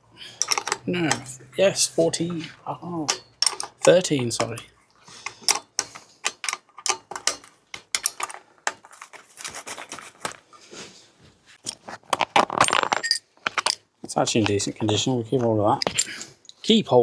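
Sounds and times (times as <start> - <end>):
metal tools clinking: 0.2 - 9.2, 12.5 - 13.8, 15.7 - 16.4
spanner knocking on bolt: 0.4 - 1.3, 3.1 - 4.6, 5.3 - 8.4.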